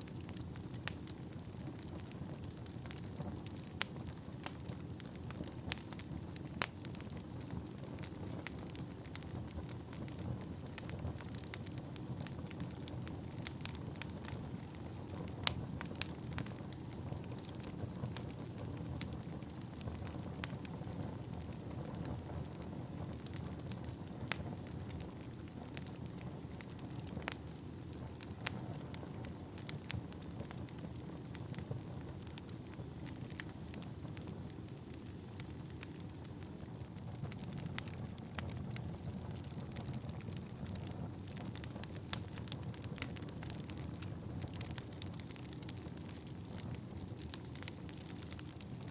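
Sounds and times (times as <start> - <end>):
fire crackling and popping: 0.0 - 48.9
low rumble of flames: 0.0 - 48.9
faint high whistle: 31.1 - 37.2.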